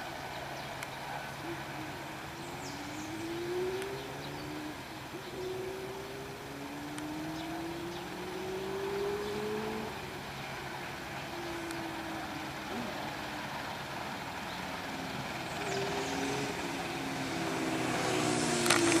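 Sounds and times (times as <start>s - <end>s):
engine noise with hiss: 0.0s - 19.0s
short engine tones: 10.8s - 19.0s.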